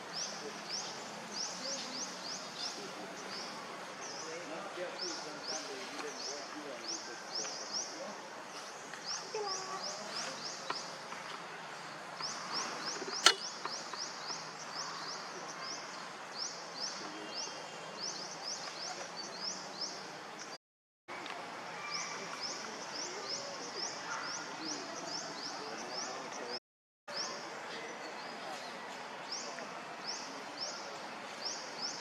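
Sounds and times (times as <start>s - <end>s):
sharp click: 13.1s - 14.0s.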